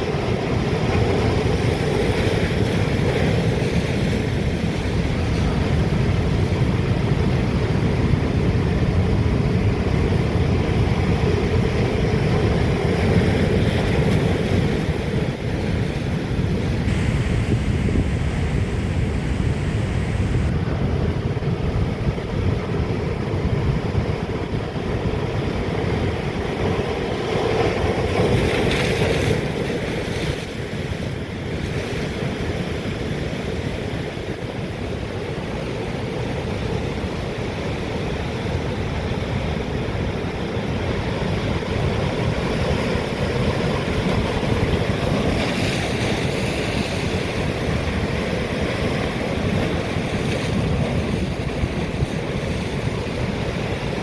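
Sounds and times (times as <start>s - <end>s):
wind buffeting microphone: 0.0s - 31.7s.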